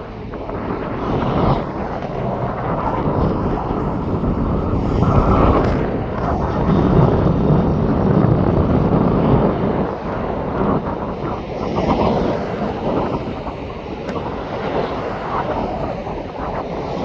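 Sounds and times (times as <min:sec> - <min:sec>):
aircraft engines rumbling: 0:00.0 - 0:17.0
wind buffeting microphone: 0:00.0 - 0:17.0.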